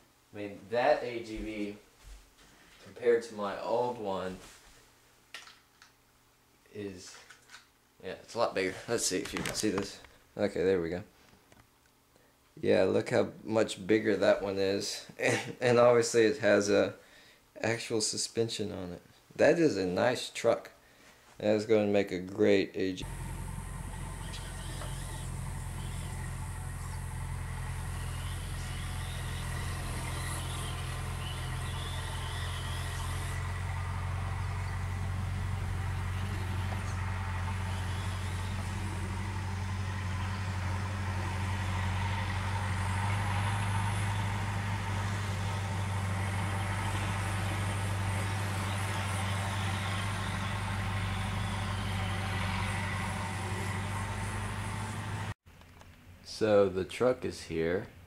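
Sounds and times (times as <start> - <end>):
low mechanical hum: 23.0 - 55.4.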